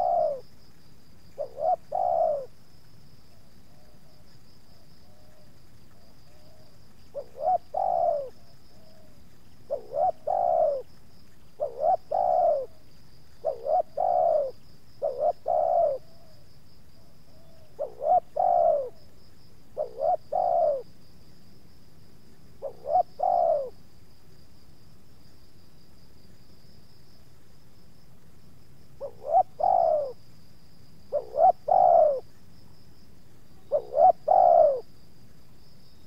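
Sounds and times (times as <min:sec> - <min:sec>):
dove cooing: 0:00.0 - 0:00.6, 0:01.3 - 0:02.6, 0:05.0 - 0:19.1, 0:19.8 - 0:20.9, 0:22.6 - 0:23.8, 0:29.0 - 0:30.2, 0:31.1 - 0:32.3, 0:33.6 - 0:34.9
high insect trill: 0:00.0 - 0:36.0.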